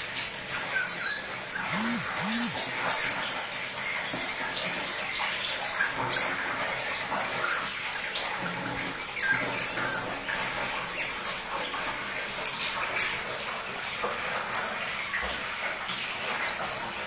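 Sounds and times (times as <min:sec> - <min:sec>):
bird twittering: 0:01.4 - 0:02.7.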